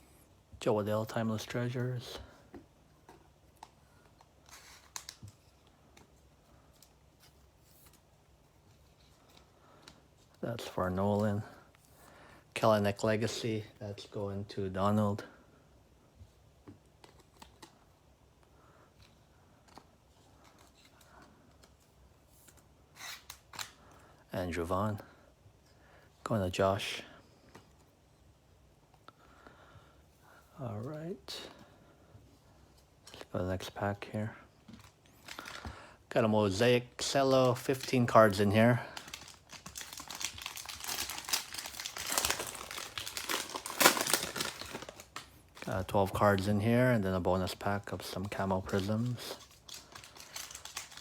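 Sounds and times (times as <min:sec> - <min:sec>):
cellophane wrapper crinkling: 0:04.4 - 0:05.5, 0:23.0 - 0:23.8, 0:34.8 - 0:35.6, 0:37.0 - 0:46.5, 0:47.4 - 0:51.0
trading cards clicking and rustling: 0:37.0 - 0:45.7, 0:48.0 - 0:51.0.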